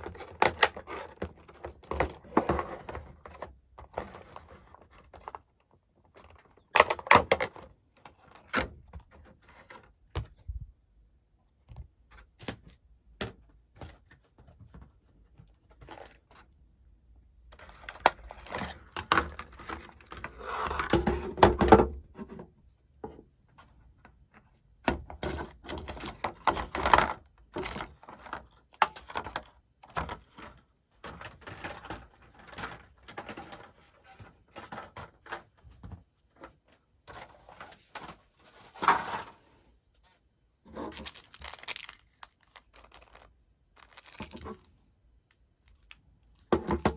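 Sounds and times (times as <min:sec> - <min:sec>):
packaging rustling: 0:40.8 - 0:44.7.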